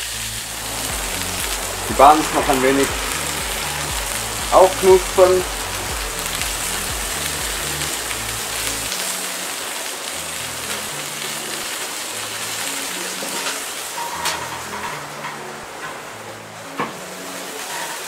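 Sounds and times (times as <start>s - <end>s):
background music bass line: 0.0s - 13.2s
patties sizzling on a griddle: 0.0s - 16.1s, 16.8s - 18.0s
grill lid metallic clank: 13.4s - 16.0s.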